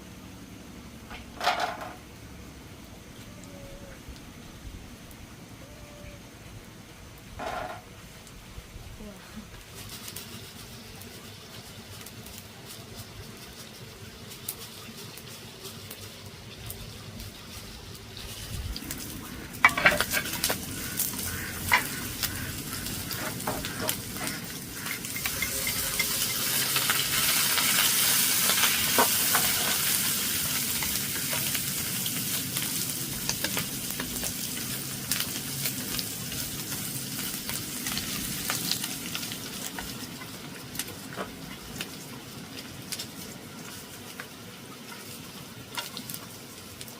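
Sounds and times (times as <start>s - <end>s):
eggplant sizzling in oil: 9.6s - 46.9s
utensil scraping a pan: 19.5s - 30.2s.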